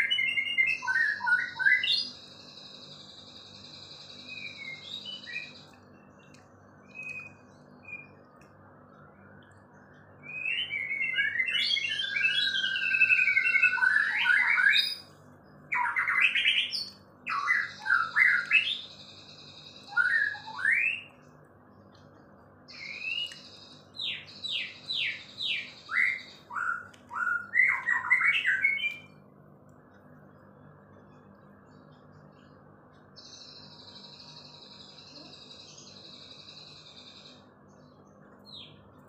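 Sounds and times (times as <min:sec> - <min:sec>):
songbird singing trills and whistles: 0:00.0 - 0:29.3, 0:30.0 - 0:39.0.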